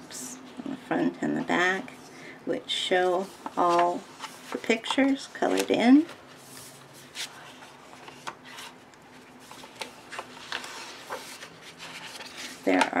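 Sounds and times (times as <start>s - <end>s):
paper rustling: 3.5s - 13.0s.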